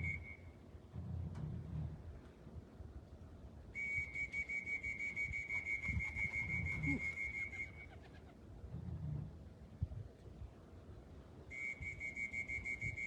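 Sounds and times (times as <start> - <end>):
high whistle-like tone: 0.0 - 0.4, 3.8 - 7.8, 11.5 - 13.0.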